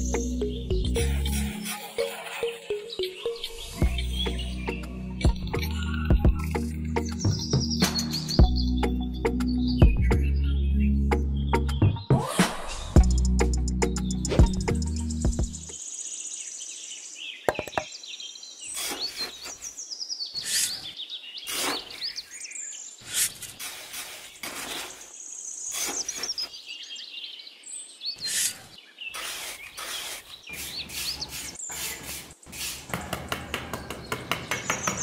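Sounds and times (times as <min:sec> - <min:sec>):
birds chirping: 0:00.0 - 0:35.0
metal trowel scraping damp sand: 0:18.7 - 0:19.8, 0:21.5 - 0:22.2, 0:23.0 - 0:25.1, 0:25.7 - 0:26.6, 0:28.2 - 0:32.9.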